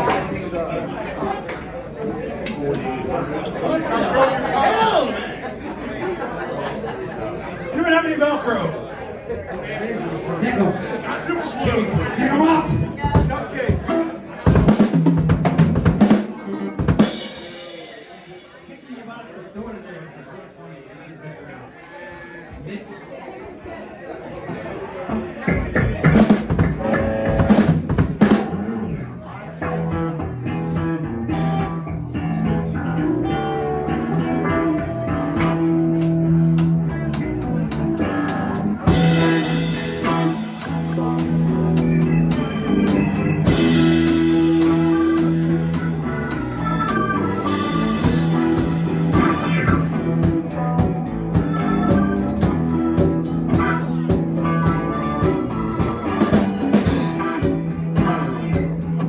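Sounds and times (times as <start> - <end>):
guitar: 0.0 - 5.1, 9.2 - 18.6, 24.9 - 59.0
drum kit: 11.6 - 18.7, 25.5 - 28.9, 33.9 - 59.0
organ: 25.4 - 29.0, 29.6 - 59.0.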